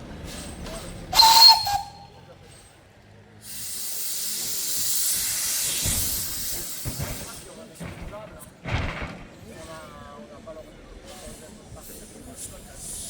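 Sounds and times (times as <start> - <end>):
steam hissing: 0.3 - 2.0, 3.4 - 7.7, 11.1 - 13.0
steam whistle blast: 1.2 - 2.1.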